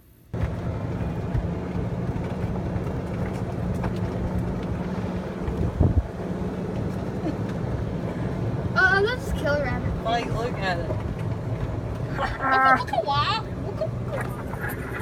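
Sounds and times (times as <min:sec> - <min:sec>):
boat motor humming: 0:00.3 - 0:15.0
wind buffeting microphone: 0:00.4 - 0:10.0.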